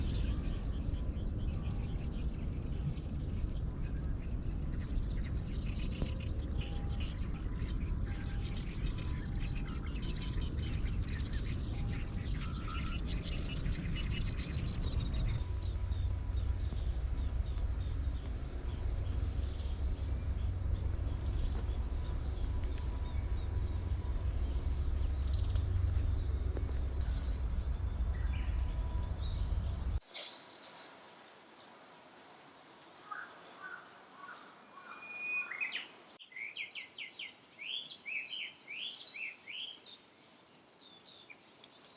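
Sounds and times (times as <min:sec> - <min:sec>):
steady low rumble: 0:00.0 - 0:30.0
songbirds singing and chirping: 0:00.0 - 0:41.9.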